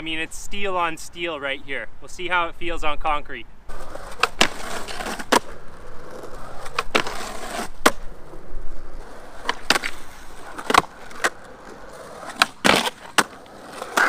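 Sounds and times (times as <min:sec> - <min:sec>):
skateboard wheels rolling on concrete: 0:00.0 - 0:14.0
skateboard clacks: 0:03.7 - 0:08.2, 0:09.0 - 0:14.0.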